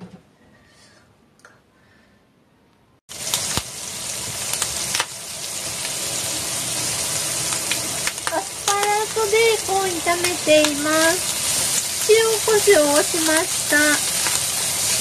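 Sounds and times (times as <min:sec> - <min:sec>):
food sizzling in a frying pan: 0:03.1 - 0:15.0.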